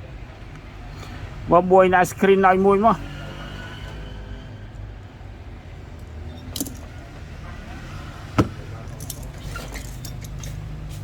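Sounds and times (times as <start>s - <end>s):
small metal objects clinking: 6.4s - 6.9s, 8.8s - 10.6s.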